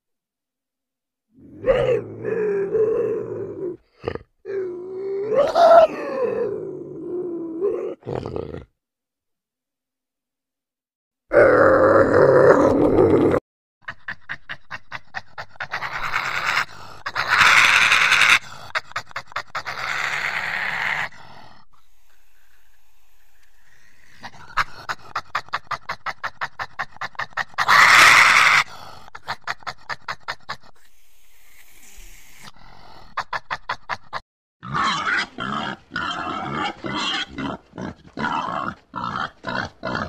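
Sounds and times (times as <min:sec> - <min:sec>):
coati vocalising in pulses: 0:11.3 - 0:31.0.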